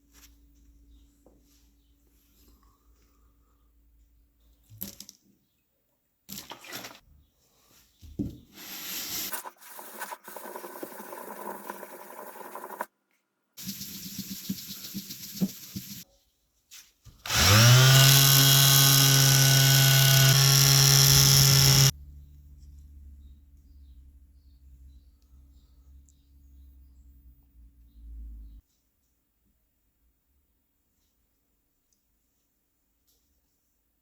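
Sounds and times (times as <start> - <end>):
electric power tool running: 17.3 - 21.9.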